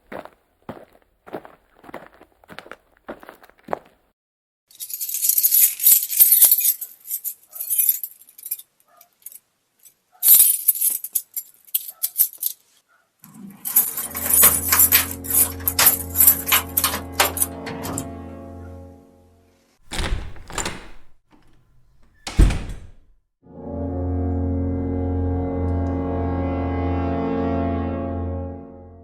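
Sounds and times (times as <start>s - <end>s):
jingling clinking rattle: 4.7s - 9.4s, 10.2s - 12.6s, 13.6s - 18.0s.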